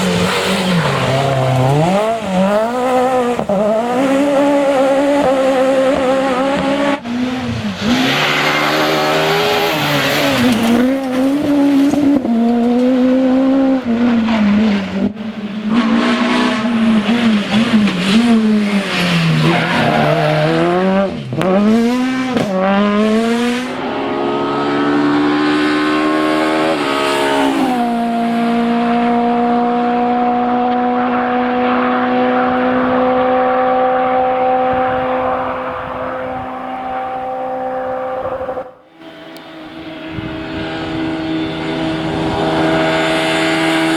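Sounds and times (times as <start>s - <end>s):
rally car engine racing: 0.0s - 43.9s.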